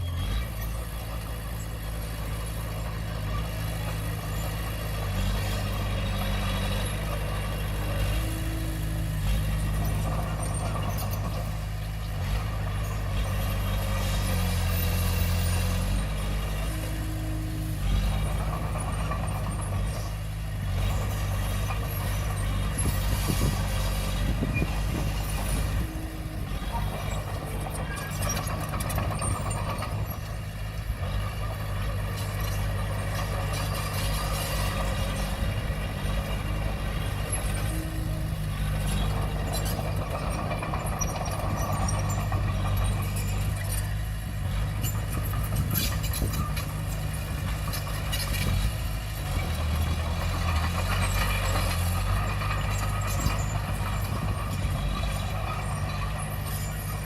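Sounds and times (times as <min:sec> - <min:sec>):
bulldozer diesel engine: 0:00.0 - 0:57.0
steel tracks clattering and squealing: 0:17.8 - 0:30.5, 0:36.3 - 0:57.0.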